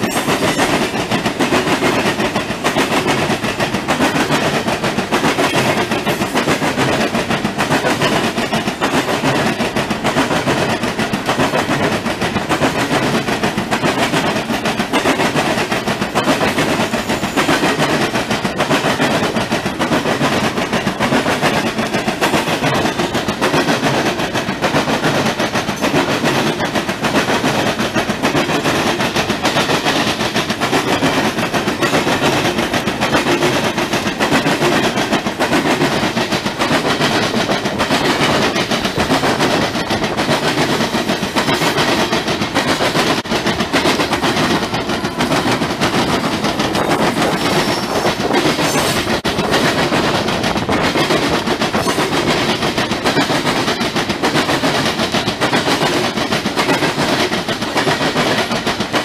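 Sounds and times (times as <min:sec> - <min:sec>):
train wheels clattering over rails: 0:00.0 - 0:59.0.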